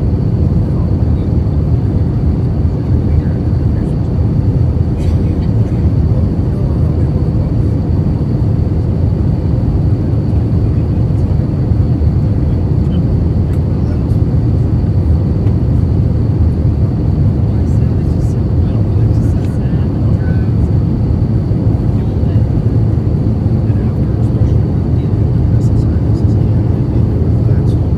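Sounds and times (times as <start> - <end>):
airplane cabin roar: 0.0 - 27.9.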